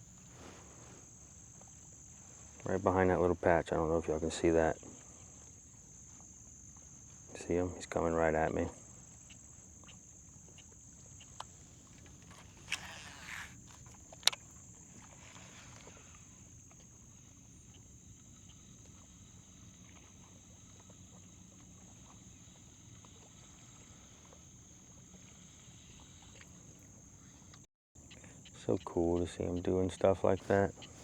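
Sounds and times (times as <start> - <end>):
insects buzzing: 0.0 - 31.0.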